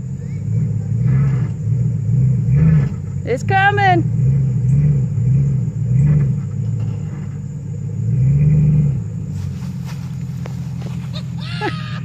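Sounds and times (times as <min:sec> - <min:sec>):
truck engine straining: 0:00.0 - 0:12.0.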